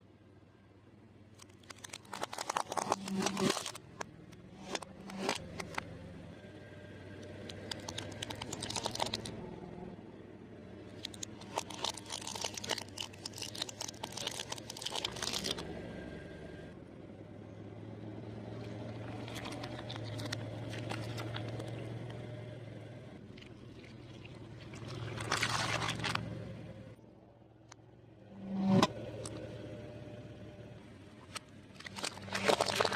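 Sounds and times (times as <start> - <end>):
low steady hum: 0.0 - 32.9
crunchy chewing of fried food: 1.4 - 4.0, 4.6 - 5.8, 7.3 - 9.4, 10.9 - 15.7, 18.9 - 21.9, 23.3 - 26.3, 31.8 - 32.9.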